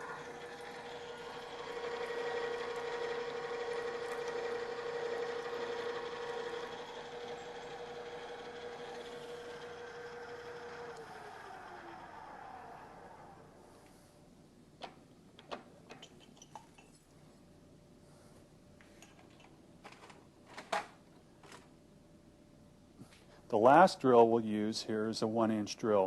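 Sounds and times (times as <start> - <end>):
drill press gear whine: 0.0 - 14.0.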